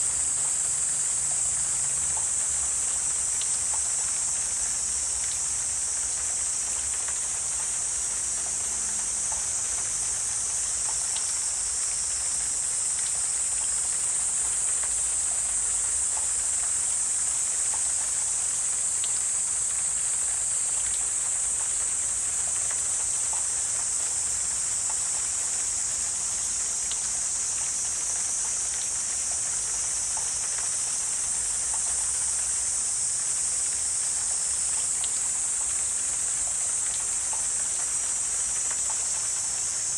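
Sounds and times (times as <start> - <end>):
insect chorus droning: 0.0 - 39.9
faint ticks: 1.3 - 4.6, 5.2 - 11.5, 12.3 - 32.8, 33.6 - 39.9.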